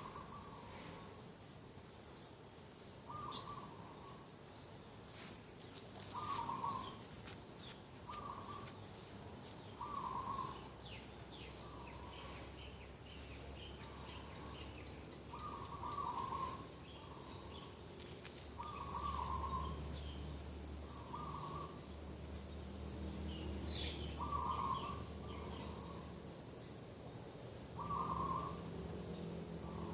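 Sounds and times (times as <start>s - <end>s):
small birds chirping faintly: 0.0s - 29.9s
dove cooing: 6.1s - 7.0s, 9.8s - 10.7s, 15.3s - 17.6s, 18.6s - 19.8s, 20.9s - 21.8s, 24.2s - 26.1s, 27.8s - 28.6s.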